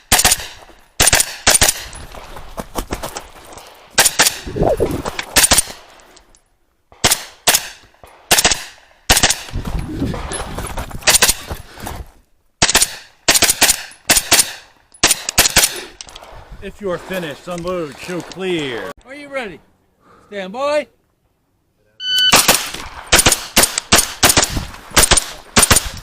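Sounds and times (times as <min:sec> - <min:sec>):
rifle gunshots: 0:00.1 - 0:02.0, 0:06.9 - 0:09.5, 0:12.6 - 0:15.8, 0:22.3 - 0:26.0.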